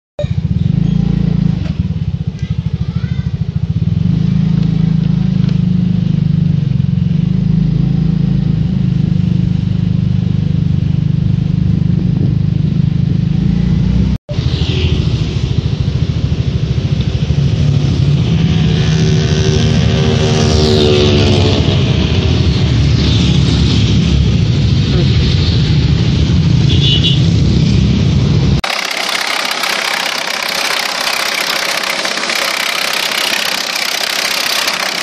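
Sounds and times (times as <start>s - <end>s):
wood chipper engine running: 28.6s - 35.0s.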